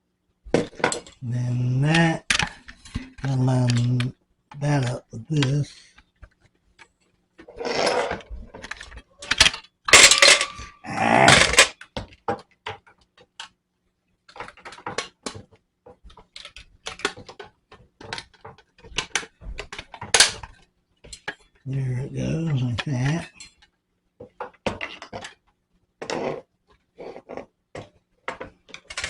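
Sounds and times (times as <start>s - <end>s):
plastic parts scraping: 0.5s - 13.6s, 14.2s - 29.0s
plastic parts clicking into place: 8.6s - 10.6s, 11.3s - 13.6s, 14.3s - 21.6s.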